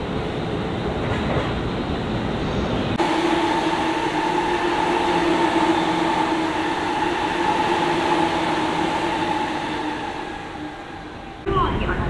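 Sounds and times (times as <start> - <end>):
train wheels rushing on rail: 0.0 - 12.0
steady low and high tones: 2.8 - 12.0.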